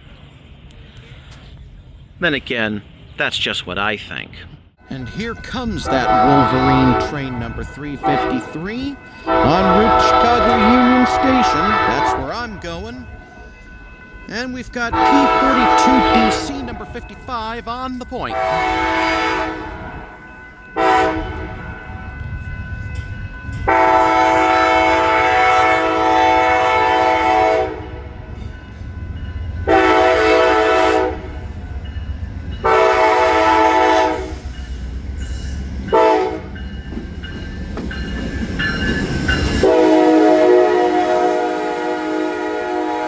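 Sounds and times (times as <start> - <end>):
train rumble: 0.0 - 43.0
locomotive horn blasts: 4.9 - 13.2, 14.8 - 17.2, 18.2 - 22.2, 23.6 - 28.2, 29.6 - 31.4, 32.6 - 34.4, 35.9 - 36.6, 39.5 - 43.0.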